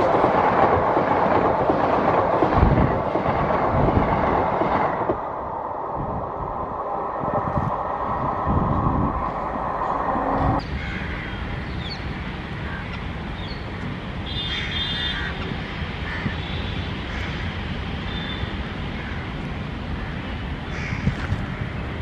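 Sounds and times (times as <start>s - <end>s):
approaching train rumble: 0.0s - 22.0s
crows cawing: 10.6s - 11.8s, 14.4s - 17.6s, 19.0s - 19.3s, 20.0s - 21.7s.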